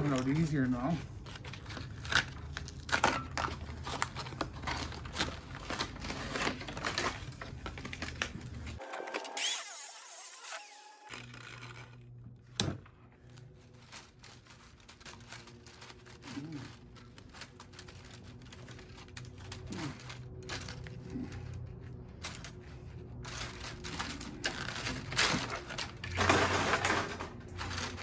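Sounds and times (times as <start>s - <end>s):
high-pitched metal scrape: 8.8s - 11.1s.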